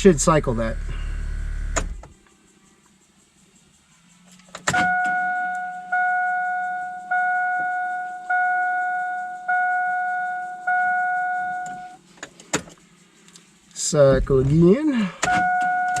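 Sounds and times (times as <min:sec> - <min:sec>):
fuel pump humming: 0:00.0 - 0:02.0
vehicle warning chime dinging: 0:04.8 - 0:12.0, 0:14.0 - 0:16.0.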